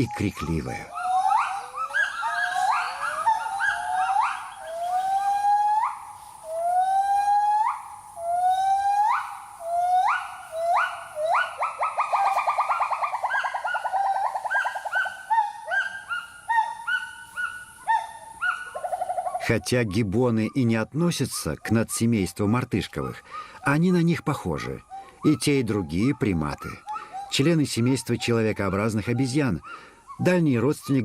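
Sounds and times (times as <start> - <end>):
gibbons whooping: 0.9 - 19.2.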